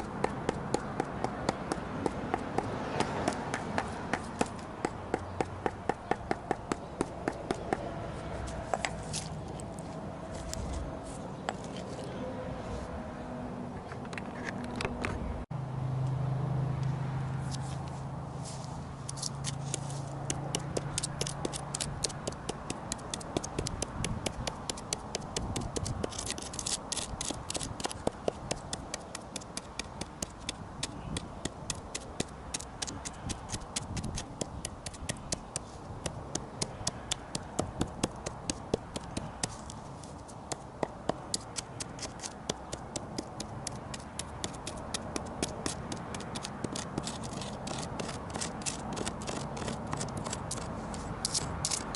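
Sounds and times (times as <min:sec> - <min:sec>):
hand tool scraping wood: 0:18.5 - 0:51.9.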